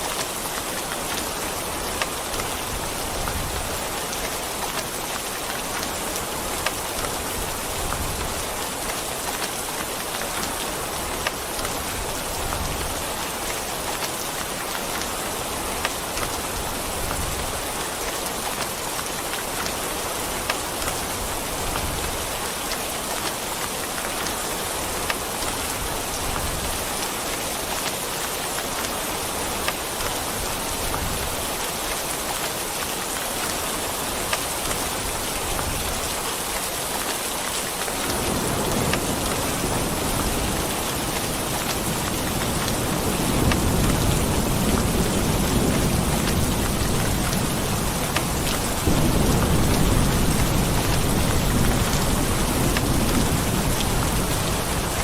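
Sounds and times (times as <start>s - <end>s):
steady rain: 0.0s - 55.0s
sharp raindrop ticks: 0.1s - 2.6s, 26.3s - 30.3s, 37.0s - 55.0s
rolling thunder: 38.1s - 55.0s.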